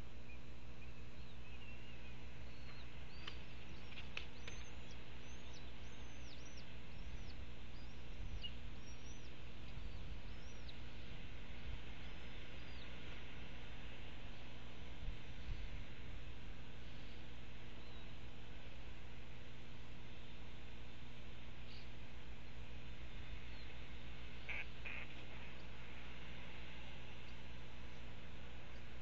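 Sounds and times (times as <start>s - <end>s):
low outdoor hum: 0.0s - 29.0s
bird chirping: 0.1s - 10.9s, 17.8s - 18.2s, 21.6s - 22.0s, 23.0s - 25.8s.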